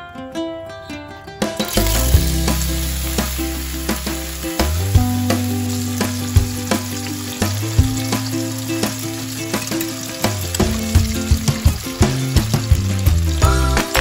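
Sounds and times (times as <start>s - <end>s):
background music with low notes: 0.1s - 14.0s
tofu sizzling in hot oil: 1.7s - 14.0s.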